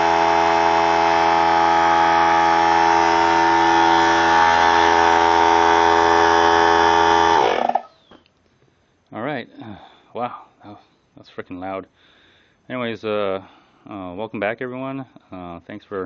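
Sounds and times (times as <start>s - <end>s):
air compressor running: 0.0s - 7.9s
air compressor winding down: 0.0s - 7.9s.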